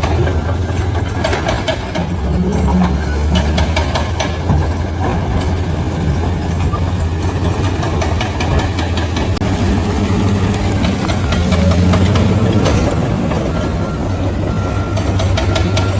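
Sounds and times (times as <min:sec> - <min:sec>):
clicks and clanks: 0:00.0 - 0:09.4, 0:10.5 - 0:13.7, 0:14.9 - 0:15.9
bulldozer diesel engine humming: 0:00.0 - 0:15.9.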